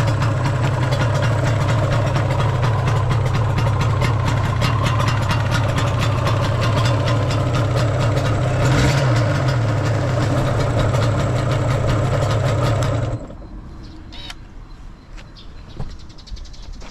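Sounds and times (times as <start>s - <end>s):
motorcycle engine idling: 0.0s - 13.5s.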